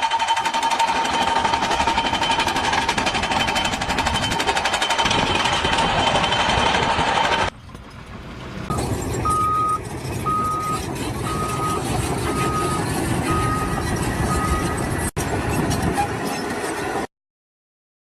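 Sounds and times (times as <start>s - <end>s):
jackhammer hammering with whine: 0.0s - 7.6s.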